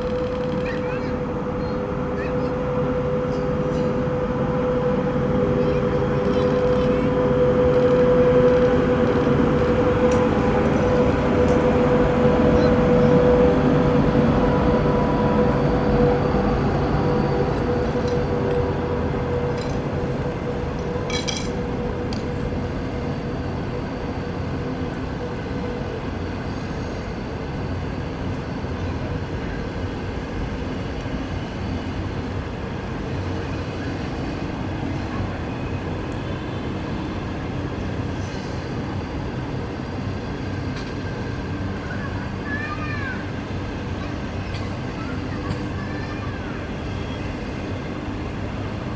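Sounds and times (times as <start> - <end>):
steady whine: 0.0 - 25.0
train running: 0.0 - 48.9.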